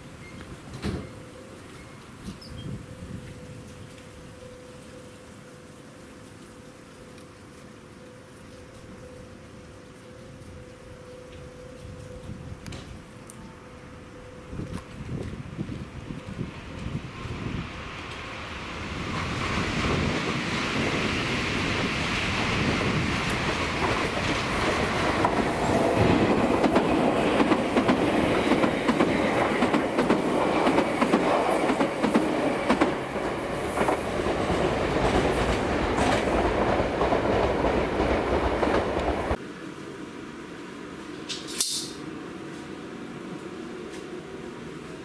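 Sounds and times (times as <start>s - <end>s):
electric train passing: 0.0s - 45.0s
wheels clacking over rail joints: 19.0s - 39.4s.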